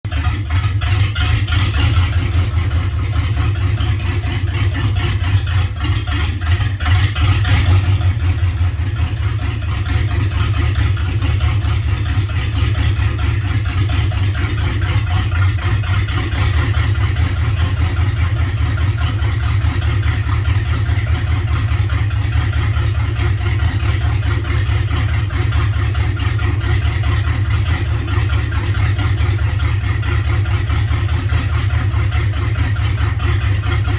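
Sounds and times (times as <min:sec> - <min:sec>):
engine idling roughly: 0:00.0 - 0:33.9.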